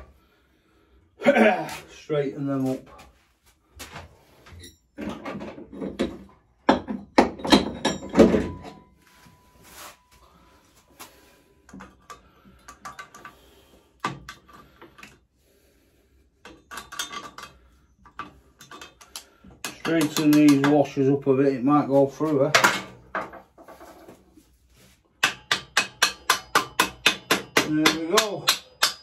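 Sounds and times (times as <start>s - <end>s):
metal washers clinking: 6.7s - 8.8s, 16.4s - 20.7s.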